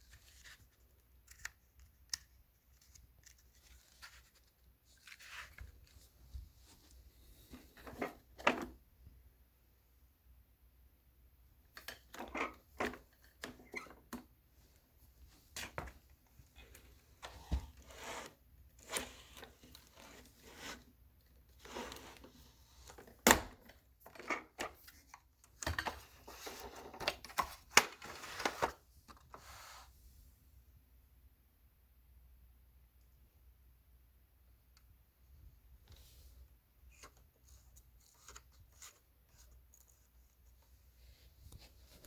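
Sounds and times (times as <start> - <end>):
rustling scrapes: 17.6 - 23.0.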